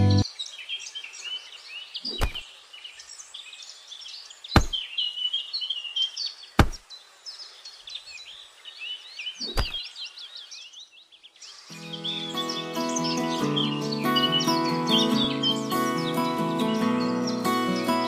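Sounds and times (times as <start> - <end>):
birds chirping and singing: 0.0 - 18.0
sharp knocks: 4.6 - 4.8, 6.6 - 6.8, 9.5 - 9.8.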